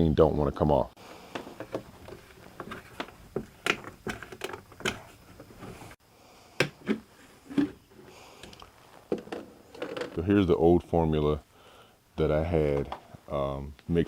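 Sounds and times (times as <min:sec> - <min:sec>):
light clicks and knocks: 0:01.3 - 0:05.9.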